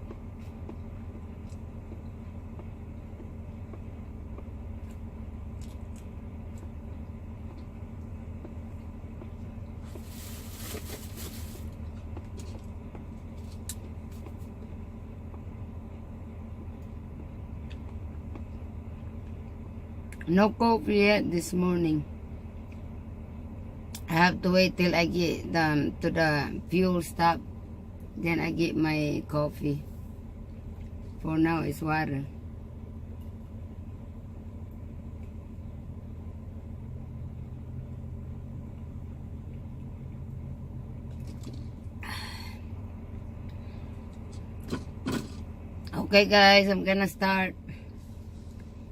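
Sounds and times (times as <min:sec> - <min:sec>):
diesel truck engine idling: 0:00.0 - 0:48.9
rustling noise: 0:09.8 - 0:12.7.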